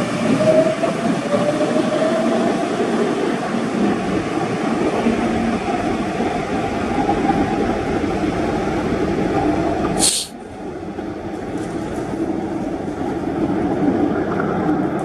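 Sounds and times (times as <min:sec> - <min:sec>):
train rumble: 0:00.0 - 0:15.0
sharp high hiss: 0:10.0 - 0:10.4.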